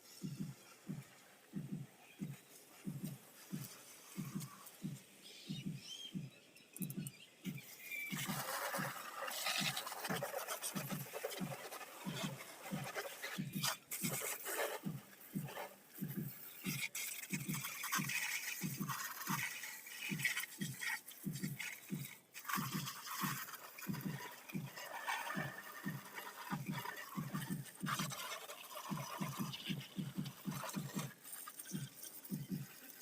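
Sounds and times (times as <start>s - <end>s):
low repeating thud: 0.2s - 1.0s, 1.6s - 8.4s
scrubbing scooter bodywork: 7.5s - 33.0s.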